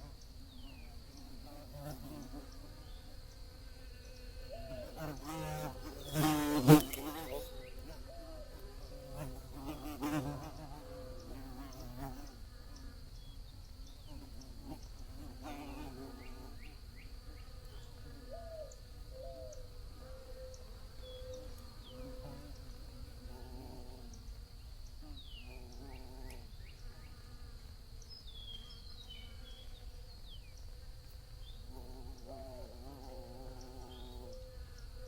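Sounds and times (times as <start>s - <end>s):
bees buzzing: 3.8s - 12.4s.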